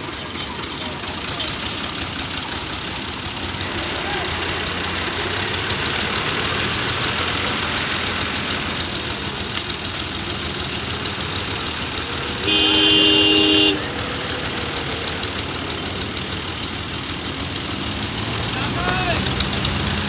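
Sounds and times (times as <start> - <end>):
tractor engines running: 0.0 - 20.0
horn: 12.4 - 13.8.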